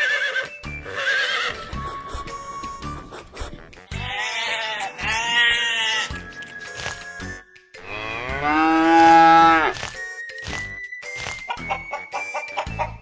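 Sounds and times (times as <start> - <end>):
horse whinny: 0.0 - 1.9
goat bleating: 3.9 - 6.2.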